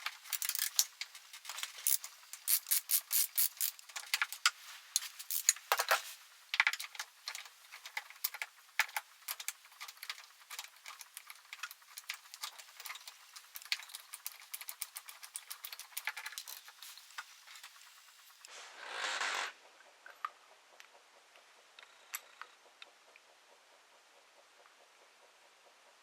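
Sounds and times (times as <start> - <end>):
metal parts and tools clicking: 0.0 - 18.4.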